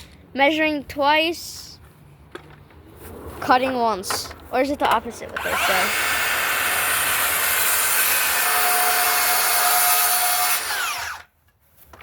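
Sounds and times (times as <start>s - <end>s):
power saw cutting wood: 5.3s - 11.3s.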